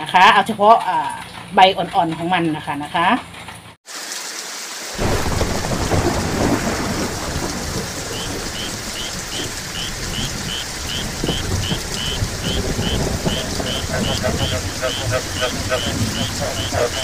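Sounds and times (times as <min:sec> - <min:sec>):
heavy rain pouring: 0:03.9 - 0:17.0.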